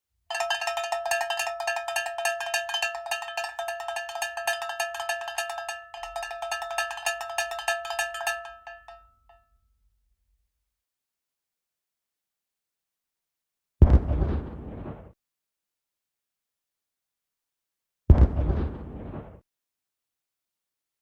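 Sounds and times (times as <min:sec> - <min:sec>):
small metal bell ringing: 0:00.3 - 0:09.4.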